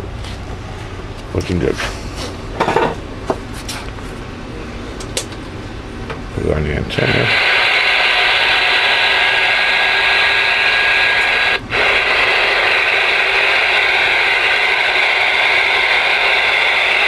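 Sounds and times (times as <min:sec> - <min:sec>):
radio receiver static hiss: 0:06.9 - 0:17.0.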